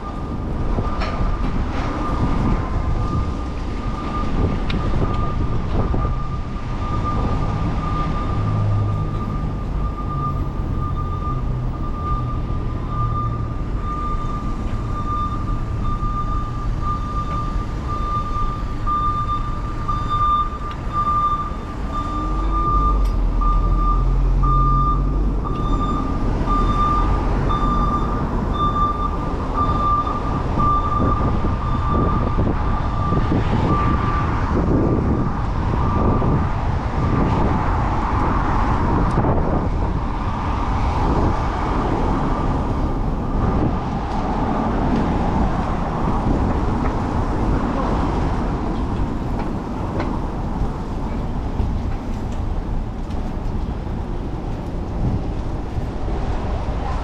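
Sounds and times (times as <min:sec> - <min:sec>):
street traffic rumble: 0:00.0 - 0:57.0
wind noise: 0:00.0 - 0:57.0.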